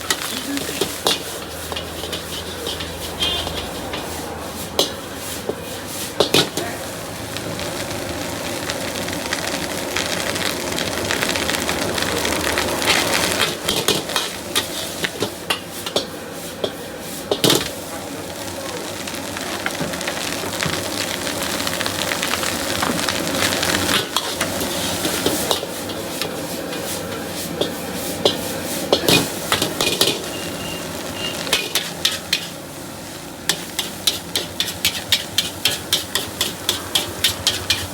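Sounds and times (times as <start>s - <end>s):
metal utensil scraping a pan: 0.0s - 6.8s, 12.8s - 17.8s, 23.4s - 37.9s
rice sizzling in a wok: 0.0s - 37.9s.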